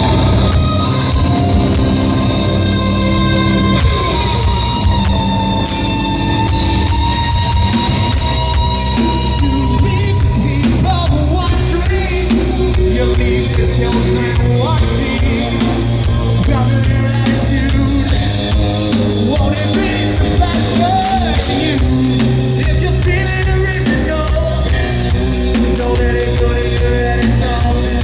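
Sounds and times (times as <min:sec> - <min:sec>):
bass guitar: 0:00.0 - 0:28.0
distorted electric guitars: 0:00.0 - 0:28.0
drum kit: 0:00.0 - 0:28.0
person singing: 0:08.8 - 0:28.0.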